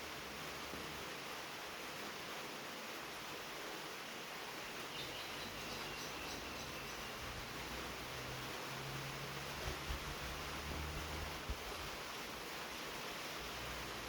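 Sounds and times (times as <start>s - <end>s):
rain on a tin roof: 0.0s - 14.0s
bird chirping: 4.9s - 7.4s.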